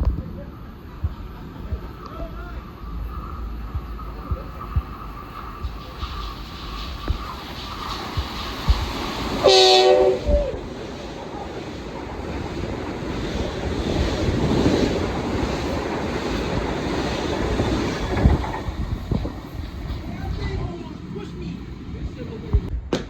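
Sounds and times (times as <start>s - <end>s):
train wheels rumbling on tracks: 0.0s - 23.0s
train horn blast: 9.4s - 10.6s.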